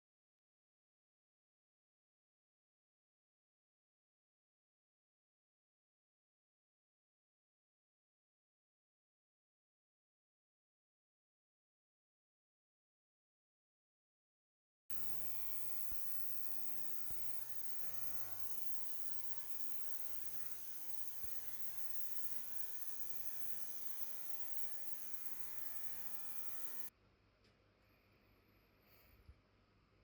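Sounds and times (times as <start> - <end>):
electrical mains hum: 14.9 - 26.9.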